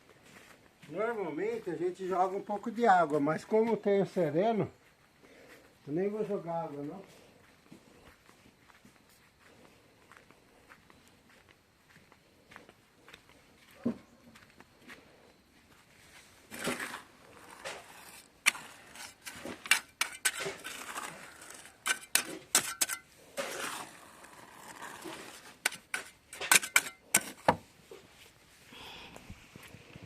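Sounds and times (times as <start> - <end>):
trowel scraping wet concrete: 16.5 - 27.6.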